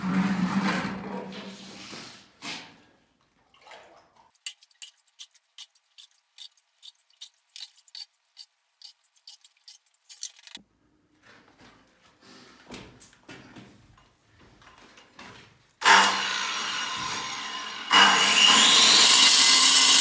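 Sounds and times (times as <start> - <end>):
water dripping: 3.2 - 10.6.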